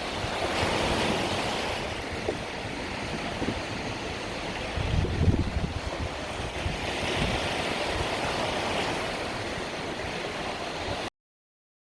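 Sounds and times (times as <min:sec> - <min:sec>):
waves washing onto beach: 0:00.0 - 0:11.1.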